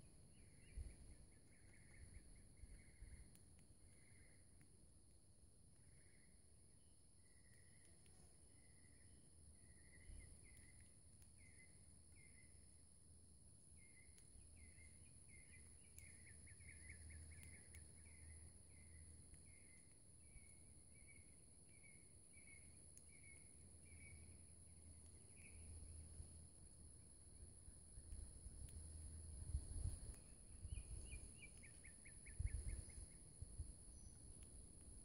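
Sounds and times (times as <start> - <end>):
faint bird chirping: 0.0 - 35.0.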